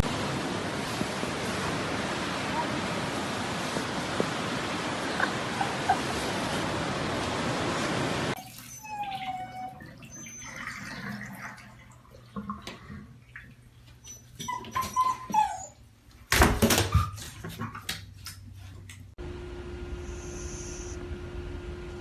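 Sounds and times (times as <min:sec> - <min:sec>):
dog whimpering: 0:05.2 - 0:06.5, 0:08.4 - 0:10.7, 0:14.0 - 0:15.8.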